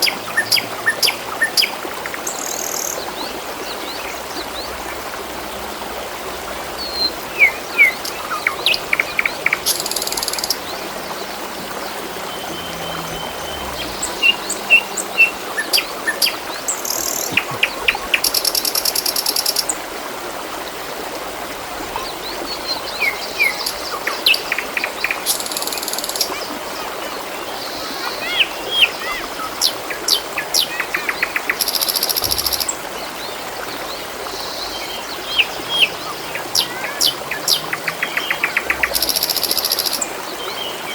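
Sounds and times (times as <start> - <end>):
water trickling: 0.0 - 40.9
small birds chirping and trilling: 6.8 - 19.7, 22.0 - 40.9.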